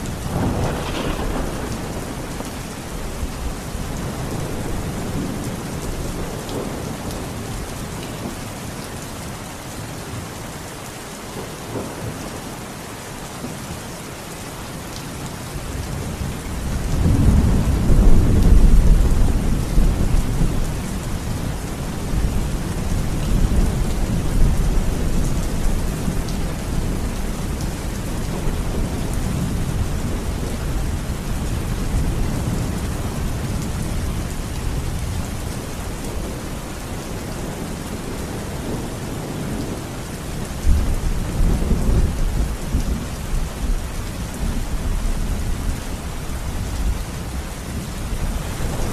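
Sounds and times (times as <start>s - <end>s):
rolling thunder: 0.0s - 7.3s, 15.8s - 36.3s
steady rain: 0.0s - 48.9s.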